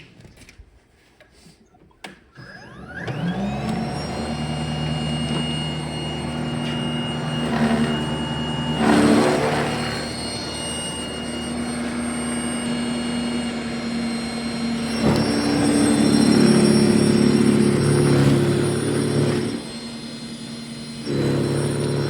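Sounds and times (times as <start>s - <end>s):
snowblower motor whine: 2.4s - 22.0s.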